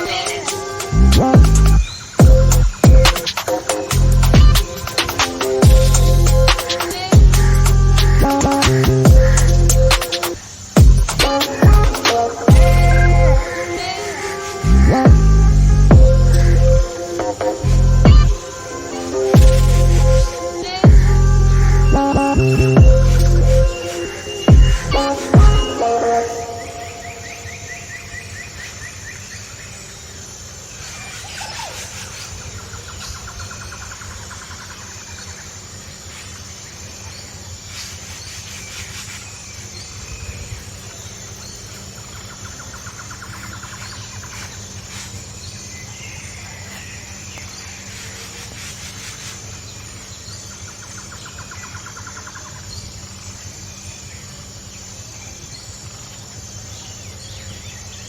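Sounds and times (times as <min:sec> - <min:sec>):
rapid bird trill: 0:00.0 - 0:29.8
birds calling: 0:00.0 - 0:36.8
pulsing insect chorus: 0:00.0 - 0:58.0
low rumble: 0:05.6 - 0:06.6, 0:14.6 - 0:16.9, 0:17.6 - 0:18.4, 0:19.4 - 0:20.3, 0:20.9 - 0:23.7, 0:24.5 - 0:25.6.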